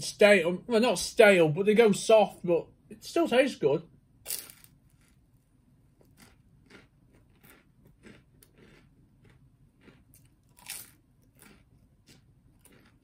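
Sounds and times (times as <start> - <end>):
person chewing crunchy food: 4.3 - 5.4, 6.0 - 13.0.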